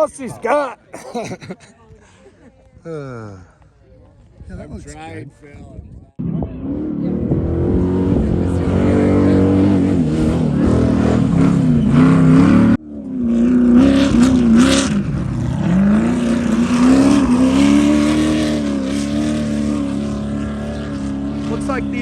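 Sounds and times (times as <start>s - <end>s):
race car engine revving: 6.2s - 22.0s.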